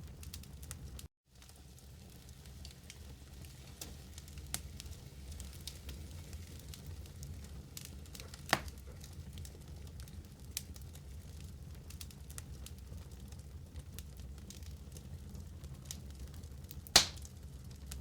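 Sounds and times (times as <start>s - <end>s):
low rumble of flames: 0.0s - 18.0s
wood fire crackling: 0.0s - 18.0s
sharp pops of fire: 7.8s - 8.9s, 16.7s - 18.0s.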